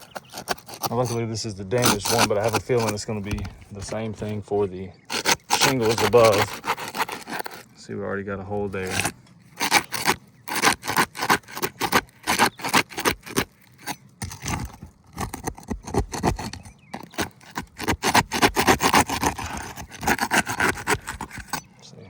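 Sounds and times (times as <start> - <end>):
brittle shingle cracking: 0.0 - 7.8, 8.6 - 21.7
roof snake scraping under shingle: 0.0 - 21.9.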